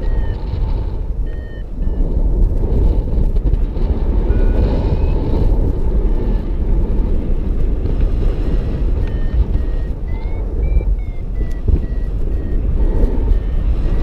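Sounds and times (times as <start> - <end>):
faint short beeps: 0.0 - 2.1, 4.2 - 5.4, 8.3 - 14.0
wind rumbling over microphone: 0.0 - 14.0.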